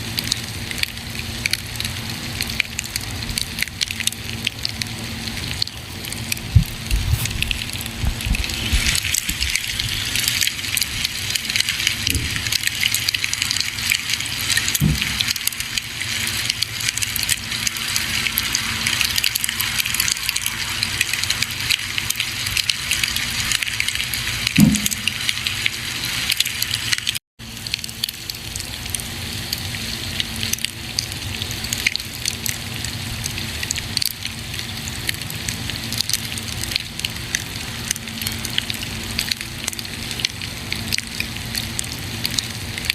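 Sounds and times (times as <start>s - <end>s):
campfire crackling and popping: 0.2s - 29.7s
soft low thuds: 6.5s - 8.8s.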